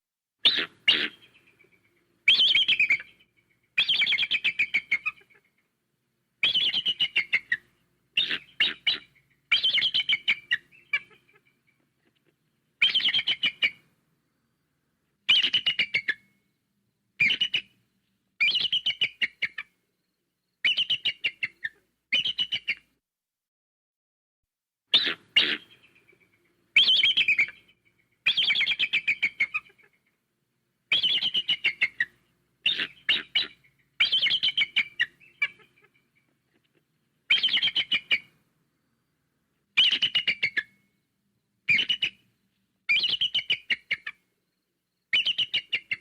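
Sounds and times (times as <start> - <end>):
eagle piping chatter: 0.4 - 5.7, 6.4 - 13.8, 24.9 - 30.2, 30.9 - 38.4, 39.8 - 40.9, 41.7 - 42.3, 42.9 - 44.2, 45.1 - 46.0.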